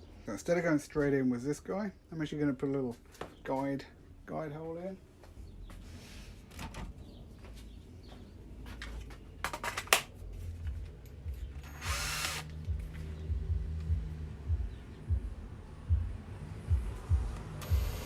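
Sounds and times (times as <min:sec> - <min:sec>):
power drill drilling: 0:11.6 - 0:12.5.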